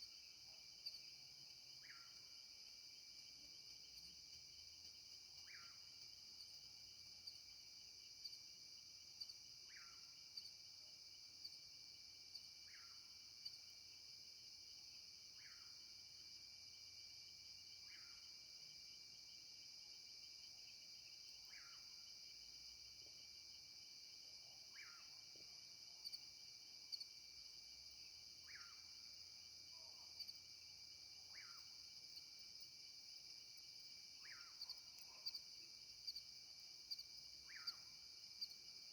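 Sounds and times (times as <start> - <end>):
crickets and insects trilling: 19.2 - 38.9.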